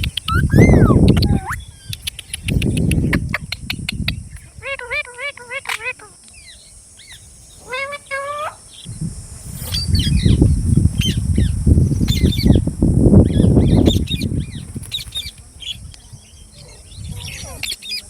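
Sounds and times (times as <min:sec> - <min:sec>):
parrots chirping and squawking: 0:00.0 - 0:01.8, 0:04.5 - 0:06.2, 0:07.0 - 0:08.9
parrot wings flapping: 0:12.1 - 0:15.6.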